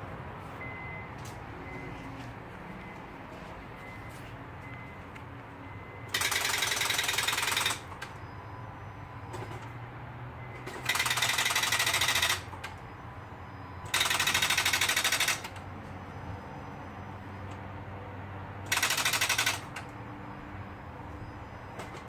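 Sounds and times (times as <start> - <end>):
starter solenoid clicking rapidly: 6.1 - 8.2, 10.7 - 12.8, 13.9 - 15.6, 18.7 - 19.9.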